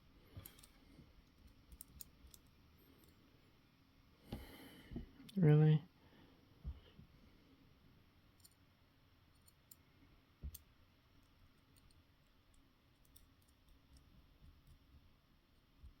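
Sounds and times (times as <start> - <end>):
small parts clicking: 0.4 - 3.2, 8.3 - 8.7, 9.3 - 9.8, 10.5 - 14.8.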